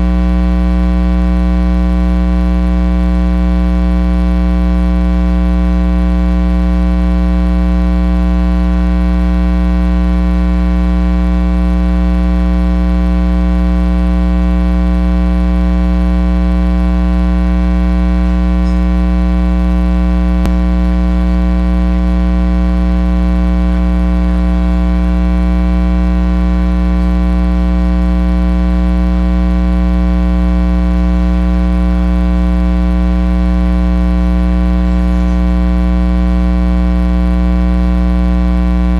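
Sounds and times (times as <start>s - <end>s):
electrical mains hum: 17.4s - 33.2s, 34.6s - 35.9s.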